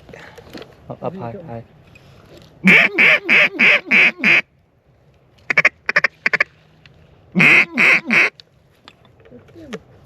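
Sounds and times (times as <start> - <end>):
duck call quacks: 2.6 - 4.4, 5.5 - 6.4, 7.4 - 8.3.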